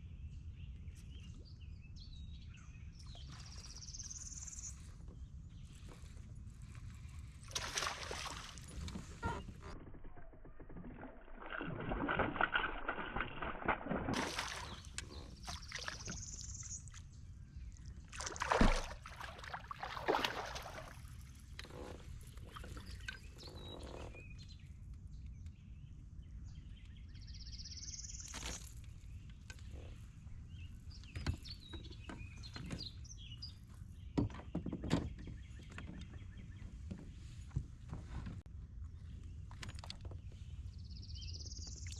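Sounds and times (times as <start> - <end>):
water noise: 6.6 - 24.2.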